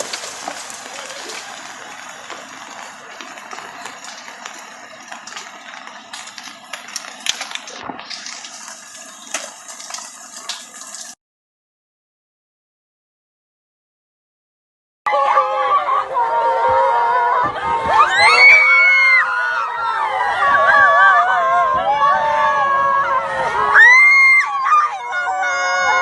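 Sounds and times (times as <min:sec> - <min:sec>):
floodwater rushing: 0:00.0 - 0:11.2.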